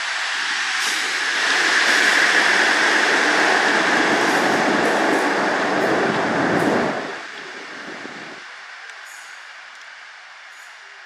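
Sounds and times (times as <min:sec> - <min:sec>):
diesel train engines running: 0:00.0 - 0:11.0
train wheels on rails: 0:00.0 - 0:11.0.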